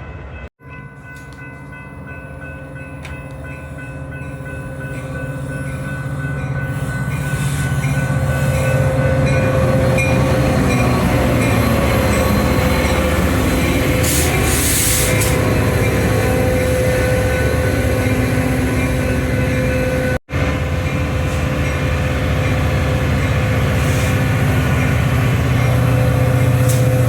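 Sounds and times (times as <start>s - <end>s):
train rumbling: 0.0s - 27.0s
burst of hiss: 14.0s - 15.3s.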